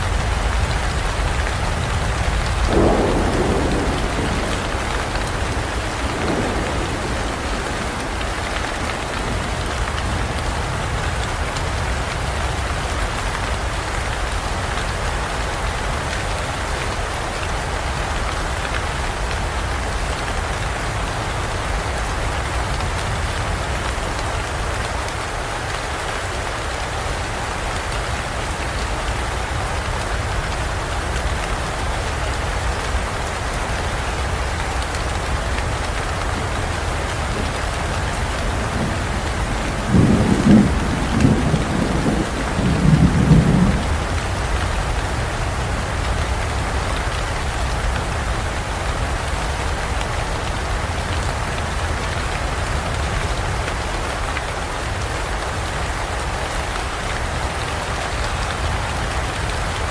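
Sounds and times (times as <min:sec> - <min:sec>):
thunder rumble: 0:00.0 - 0:12.9, 0:27.4 - 0:51.9
heavy rain pouring: 0:00.0 - 0:59.9.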